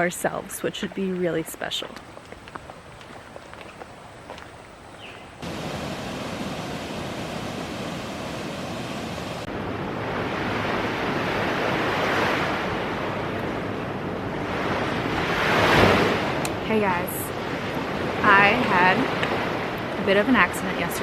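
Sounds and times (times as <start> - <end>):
rushing water hiss: 5.0 - 9.5
rush of breaking surf: 5.4 - 20.3.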